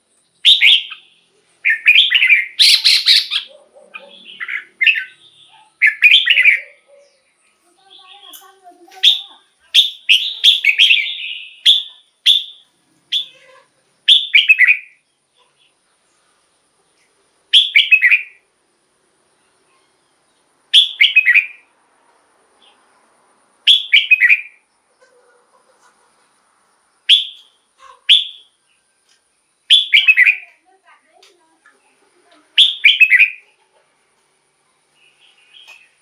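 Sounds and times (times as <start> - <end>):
bulbul whistled song: 0.4 - 3.5, 4.3 - 6.8, 9.0 - 13.4, 14.1 - 15.0, 17.5 - 18.4, 20.8 - 21.6, 23.7 - 24.6, 27.1 - 28.6, 29.6 - 30.5, 32.6 - 33.4.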